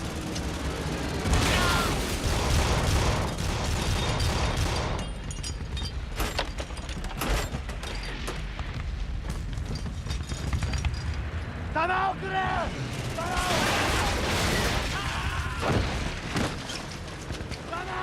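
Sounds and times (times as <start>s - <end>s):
anti-aircraft gunfire: 0.0s - 5.0s.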